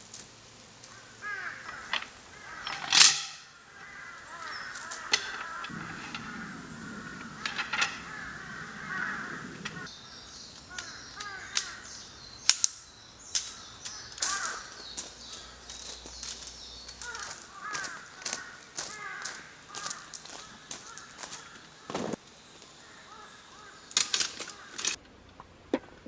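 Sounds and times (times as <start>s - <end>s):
birds calling: 0.0s - 25.0s
sharp clicks and knocks: 4.3s - 9.9s.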